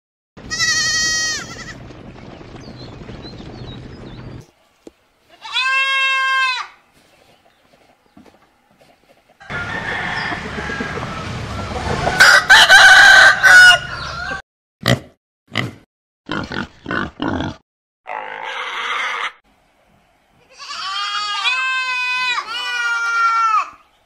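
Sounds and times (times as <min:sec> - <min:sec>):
rooster crowing: 0:09.4 - 0:14.4.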